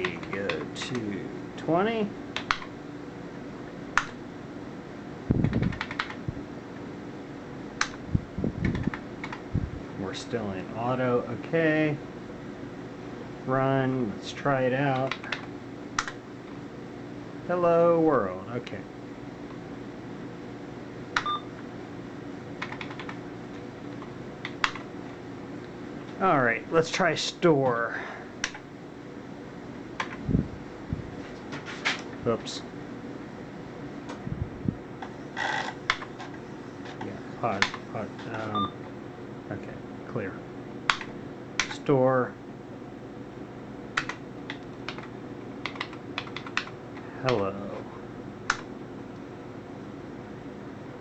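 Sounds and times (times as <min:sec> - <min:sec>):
steady low hum: 0:00.0 - 0:51.0
keyboard keys clicking: 0:05.5 - 0:06.2, 0:22.6 - 0:23.2, 0:44.9 - 0:46.7
keyboard key clicks: 0:44.0 - 0:44.2.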